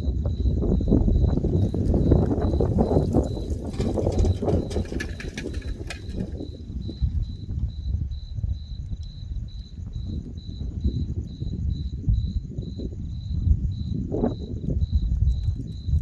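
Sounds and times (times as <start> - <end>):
cricket chirping: 0.0 - 16.0
thunder rumbling: 1.0 - 6.7.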